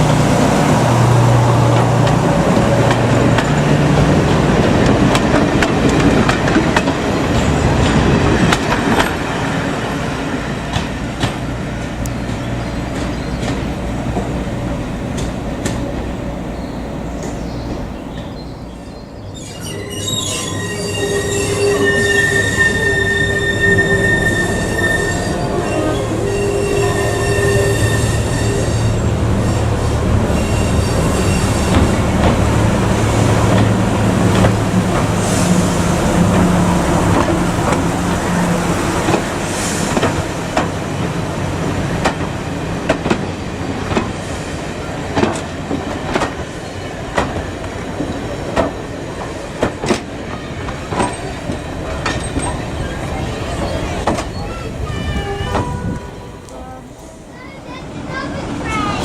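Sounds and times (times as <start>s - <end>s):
train hum: 0.0s - 59.0s
wheel squeal: 19.3s - 29.6s, 30.3s - 31.9s.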